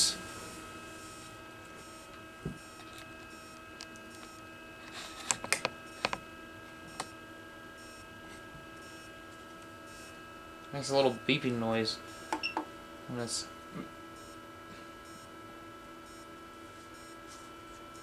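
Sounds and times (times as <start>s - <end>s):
faint electrical hum: 0.0s - 18.0s
sharp clicks and taps: 5.3s - 6.2s.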